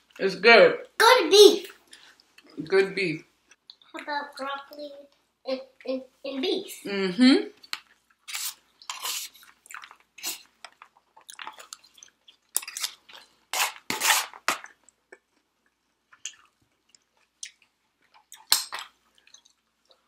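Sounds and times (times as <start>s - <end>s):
wet chewing and crunching: 7.6s - 13.4s, 14.4s - 20.0s.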